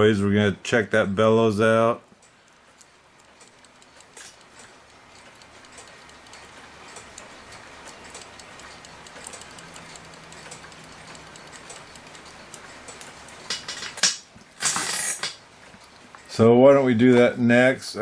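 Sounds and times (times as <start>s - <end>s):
clock ticking: 1.2s - 14.6s, 15.4s - 18.0s
sharp clicks: 2.1s - 16.4s
clatter of parts handled: 13.5s - 15.4s.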